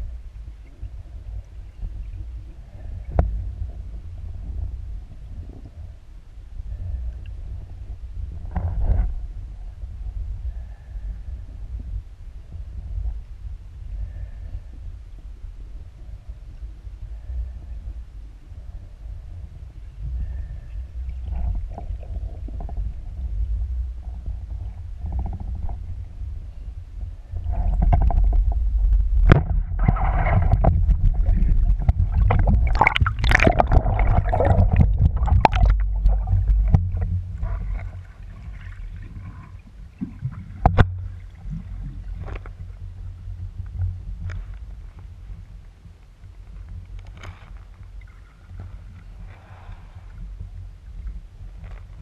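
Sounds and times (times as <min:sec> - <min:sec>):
water sloshing and gurgling: 0:19.6 - 0:45.4, 0:46.6 - 0:52.0.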